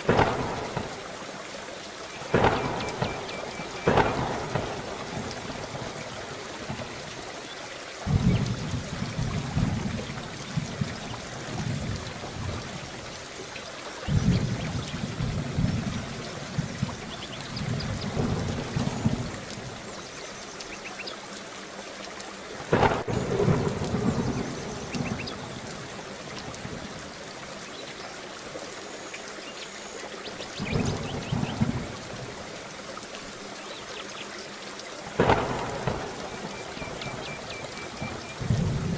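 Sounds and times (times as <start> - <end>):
rolling thunder: 0.0 - 1.2, 2.3 - 6.9, 8.0 - 12.9, 14.0 - 19.8, 22.7 - 26.9, 30.6 - 32.4, 35.2 - 38.9
heavy rain: 0.0 - 38.9.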